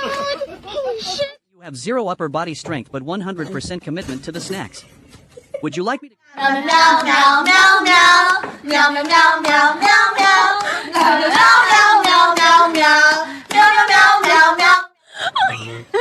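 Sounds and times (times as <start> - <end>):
child singing: 6.4 - 14.9.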